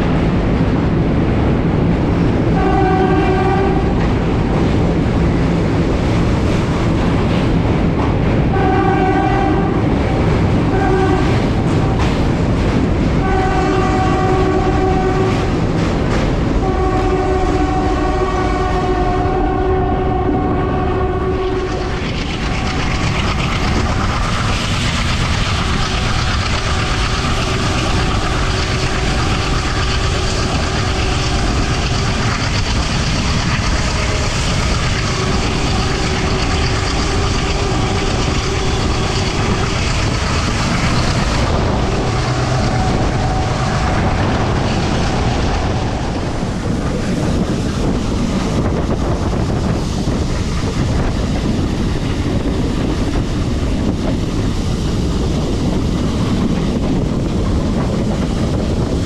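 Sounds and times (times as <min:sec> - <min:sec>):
train wheels rumbling on track: 0:00.0 - 0:59.0
train horn: 0:02.5 - 0:04.2, 0:08.5 - 0:12.2, 0:13.1 - 0:15.6, 0:16.6 - 0:24.1, 0:25.6 - 0:47.9.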